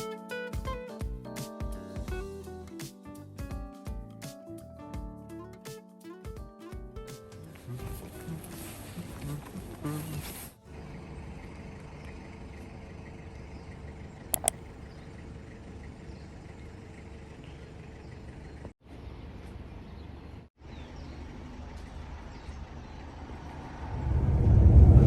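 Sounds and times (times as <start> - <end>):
bus road rumble from inside: 7.3 - 25.0
short sharp click: 14.4 - 14.6.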